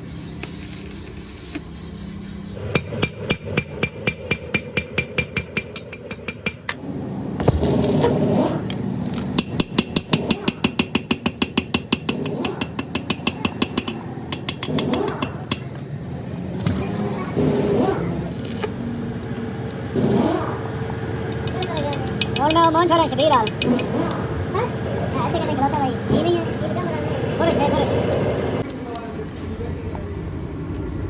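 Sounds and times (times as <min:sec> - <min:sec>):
hammer striking metal: 0:02.6 - 0:06.8, 0:09.3 - 0:15.8, 0:21.3 - 0:24.3.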